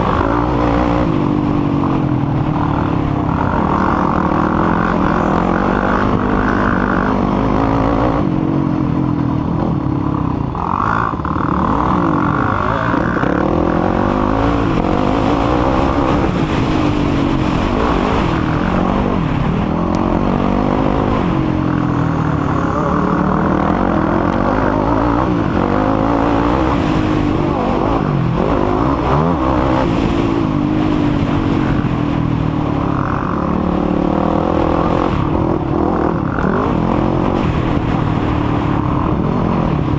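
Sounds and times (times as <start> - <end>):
quad engines revving: 0.0 - 39.9.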